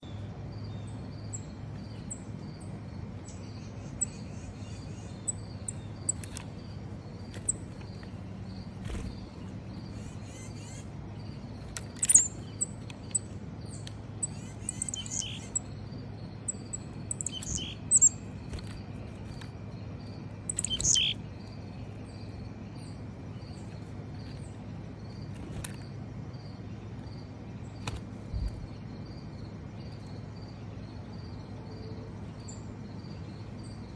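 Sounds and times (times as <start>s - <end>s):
small songbirds chirping: 0.0s - 33.9s
pulsing insect trill: 0.5s - 27.3s.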